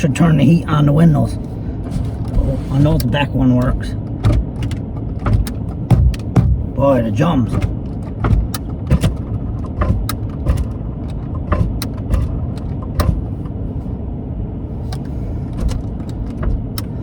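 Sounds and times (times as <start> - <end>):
car engine rumble inside cabin: 0.0 - 17.0
switch clicks and knocks: 3.6 - 6.7, 7.5 - 13.2.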